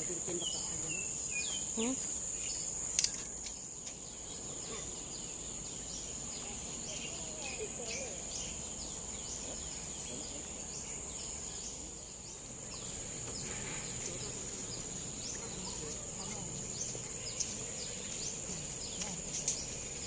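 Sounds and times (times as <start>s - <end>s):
sharp click: 3.0s - 4.0s.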